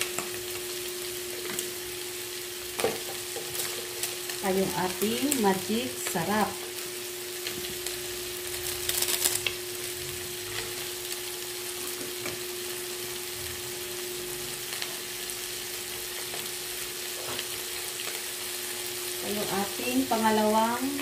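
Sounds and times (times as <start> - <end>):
fish sizzling in a pan: 0.0 - 21.0
louder crackle: 8.5 - 9.6.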